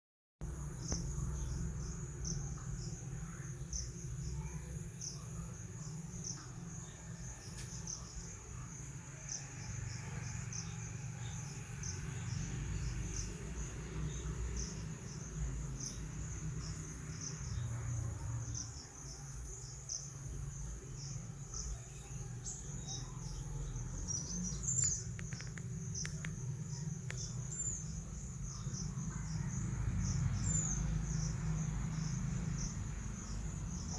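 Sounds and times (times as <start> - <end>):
insects chirping: 0.4 - 33.9
steady low rumble: 12.2 - 33.9.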